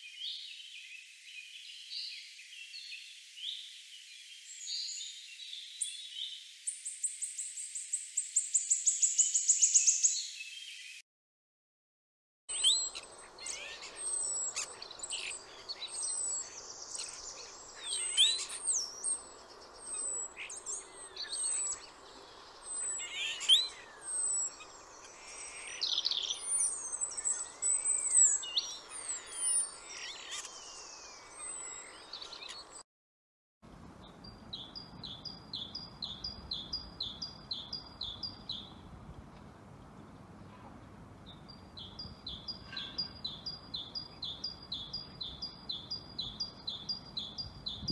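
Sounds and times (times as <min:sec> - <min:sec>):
songbird whistling song: 0:00.0 - 0:11.0, 0:12.5 - 0:32.7.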